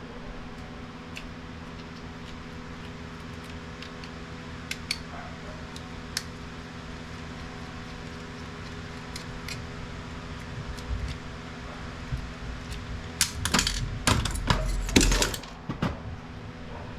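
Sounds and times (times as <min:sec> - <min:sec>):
small plastic parts clicking: 0:01.1 - 0:06.5, 0:07.1 - 0:11.3, 0:12.1 - 0:15.6.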